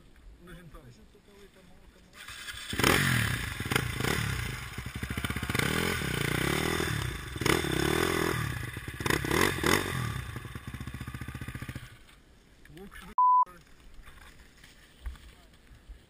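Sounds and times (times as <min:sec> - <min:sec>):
dirt bike engine revving: 0:02.2 - 0:12.1.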